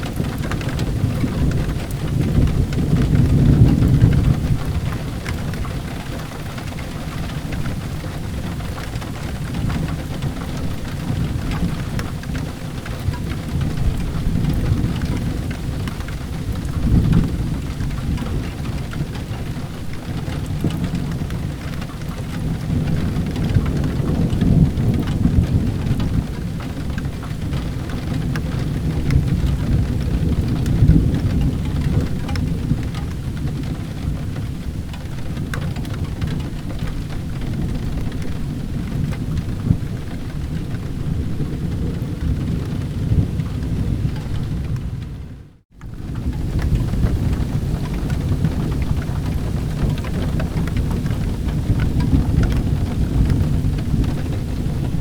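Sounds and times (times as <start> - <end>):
heavy rain: 0.0 - 55.0
rolling thunder: 0.0 - 55.0.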